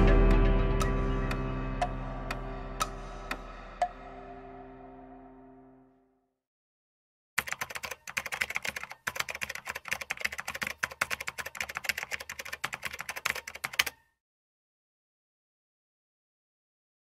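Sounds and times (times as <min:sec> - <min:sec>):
music note: 0:00.0 - 0:06.0
keyboard typing clicks: 0:07.4 - 0:14.0.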